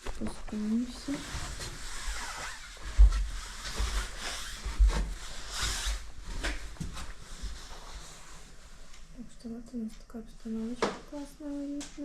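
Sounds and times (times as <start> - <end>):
clothing rustling: 0.0 - 9.3.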